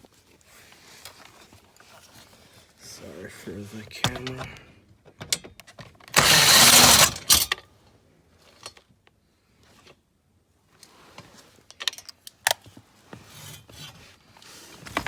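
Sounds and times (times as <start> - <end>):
loud rustling scrape: 6.2 - 7.5.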